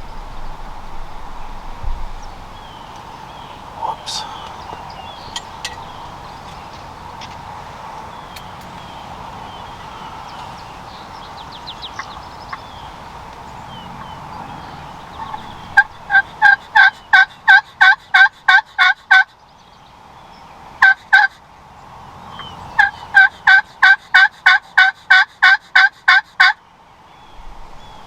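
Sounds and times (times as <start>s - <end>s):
turkey call yelps: 15.2s - 19.3s, 20.8s - 21.4s, 22.4s - 26.6s.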